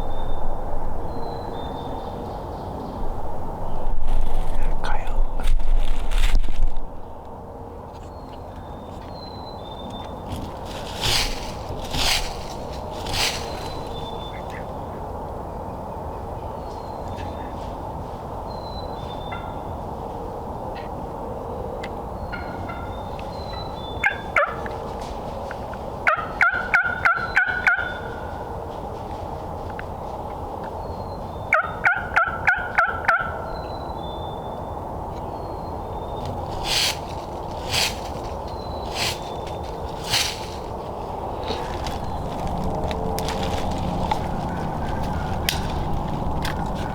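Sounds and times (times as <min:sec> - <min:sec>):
faint songbird notes: 0:00.0 - 0:05.5, 0:07.0 - 0:17.8, 0:33.4 - 0:42.8
rustling bursts: 0:10.3 - 0:14.2, 0:36.3 - 0:46.9
turkey gobbling: 0:24.0 - 0:24.7, 0:26.0 - 0:28.3, 0:31.5 - 0:33.5, 0:41.4 - 0:46.9
steady background rush: 0:34.9 - 0:46.9.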